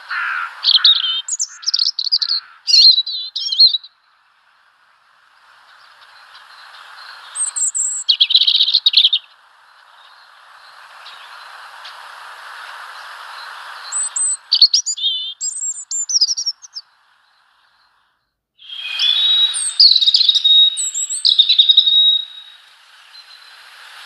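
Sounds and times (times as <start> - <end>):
small birds chirping and twittering: 0.0 - 24.0
hiss: 3.9 - 16.3, 18.6 - 24.0.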